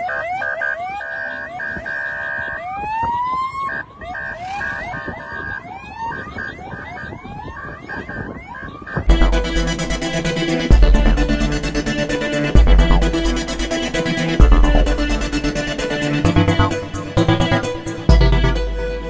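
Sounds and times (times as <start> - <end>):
sirens whooping and wailing: 0.0 - 19.0
keyboard music with a beat: 9.0 - 19.0.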